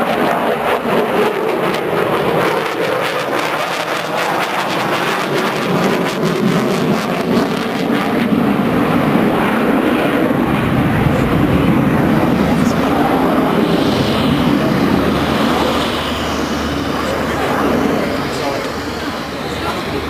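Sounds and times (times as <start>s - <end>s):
military aircraft flying overhead: 0.0s - 20.0s.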